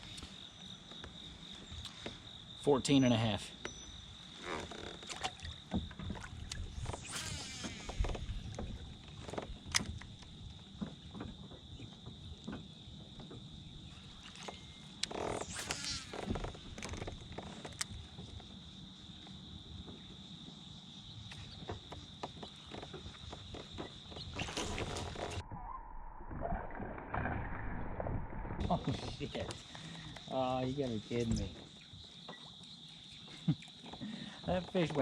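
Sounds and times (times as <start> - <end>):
high-pitched insect drone: 6.6 - 10.3, 13.9 - 19.7.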